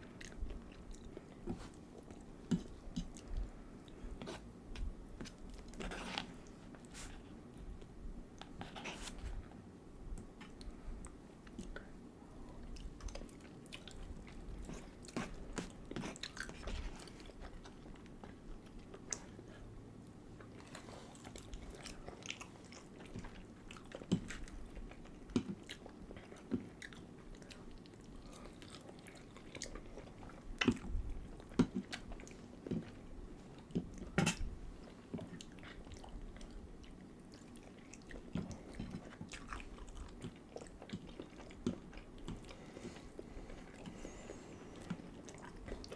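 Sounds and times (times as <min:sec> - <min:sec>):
chewing and biting food: 0:12.6 - 0:19.6, 0:20.4 - 0:45.9.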